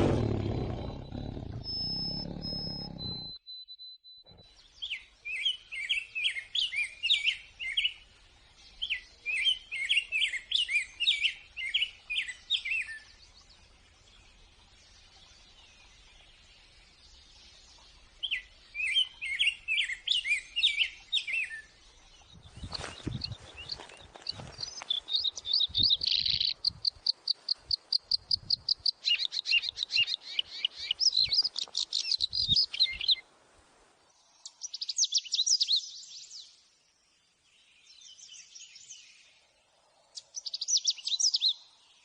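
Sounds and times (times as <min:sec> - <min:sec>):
tiger roaring: 0:00.0 - 0:03.4
songbird chirping: 0:00.0 - 0:42.0.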